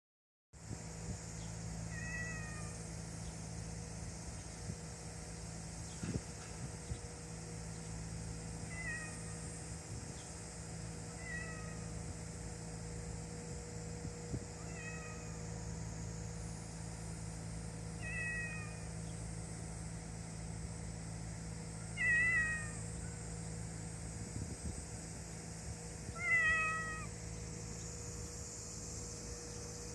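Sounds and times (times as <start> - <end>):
steady low hum: 0.6 - 29.9
cat meowing: 1.9 - 2.8, 8.7 - 9.4, 11.2 - 11.8, 14.6 - 15.3, 18.0 - 18.8, 22.0 - 22.7, 26.1 - 27.1.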